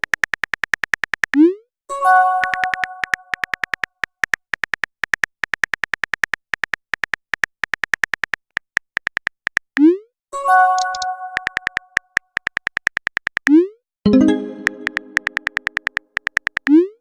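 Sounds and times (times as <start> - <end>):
phone keyboard taps: 14.6 - 16.7.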